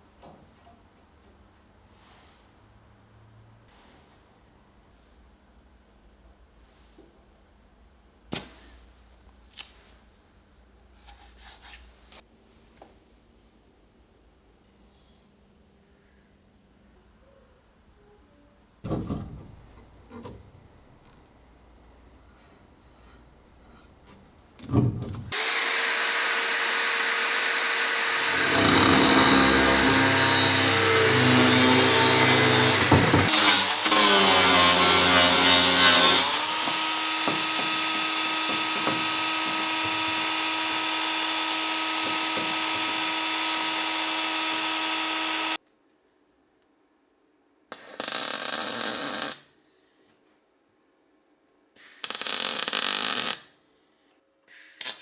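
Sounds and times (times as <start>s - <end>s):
power tool whining on sheet metal: 25.3s - 45.6s.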